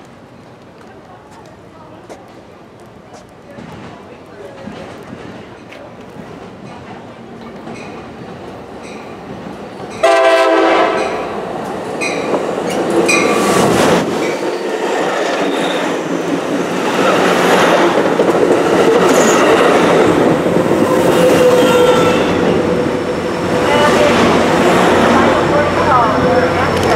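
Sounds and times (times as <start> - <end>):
train rumble and wheel clatter: 0.0 - 26.9
train horn blast: 10.0 - 11.3.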